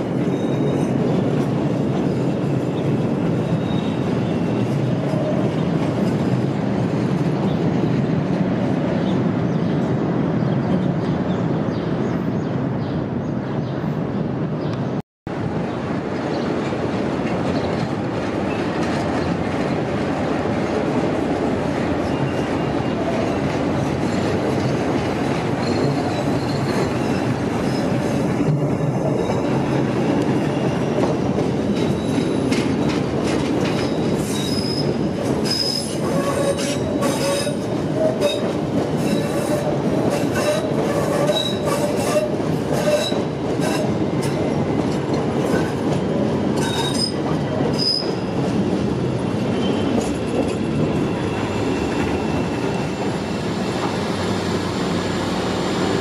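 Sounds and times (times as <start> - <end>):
train wheels squealing: 0.2 - 1.2, 2.1 - 5.5, 22.0 - 24.7, 25.4 - 28.3, 29.0 - 33.0, 33.6 - 44.6, 46.6 - 48.4, 49.4 - 54.4
wheels clicking over rail joints: 23.1 - 48.8.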